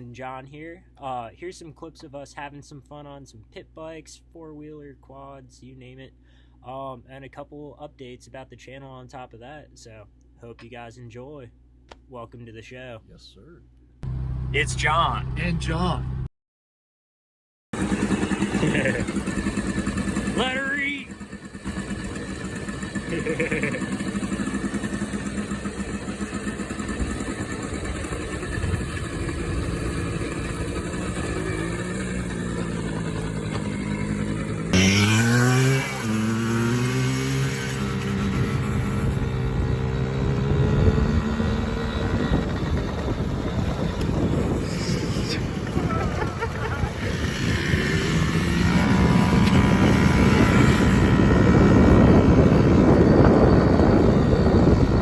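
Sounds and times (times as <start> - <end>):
engine revving up: 17.8 - 55.0
pit bike engine running: 17.8 - 55.0
wind noise on microphone: 26.9 - 31.8, 35.2 - 55.0.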